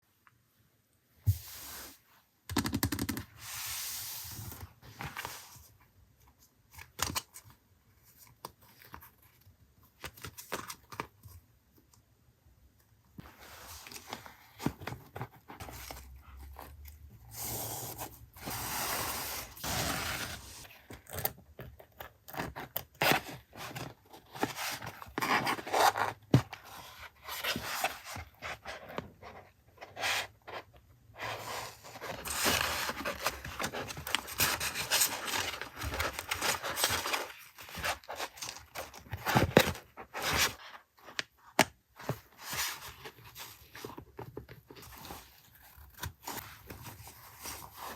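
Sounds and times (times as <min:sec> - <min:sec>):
packaging rustling and tearing: 0:31.5 - 0:40.6.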